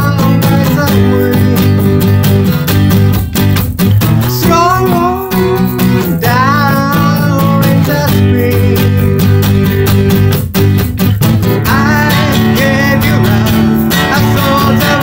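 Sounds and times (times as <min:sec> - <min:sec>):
person singing: 0:00.0 - 0:02.4, 0:04.2 - 0:09.4, 0:11.6 - 0:15.0
acoustic guitar strummed: 0:00.0 - 0:15.0.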